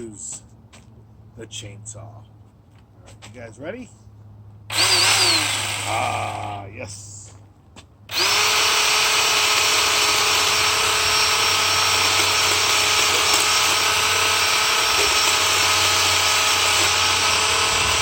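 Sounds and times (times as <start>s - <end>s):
cordless chainsaw cutting wood: 4.7s - 6.5s, 8.1s - 18.0s.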